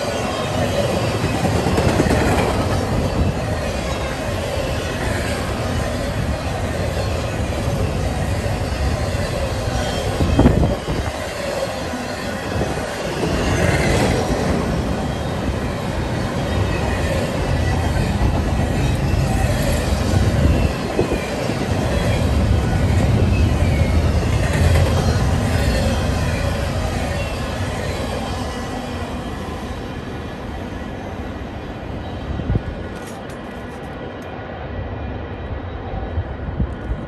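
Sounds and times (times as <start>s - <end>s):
wheel squeals: 0.0s - 28.9s
steel wheels rumbling on rail: 0.0s - 37.0s.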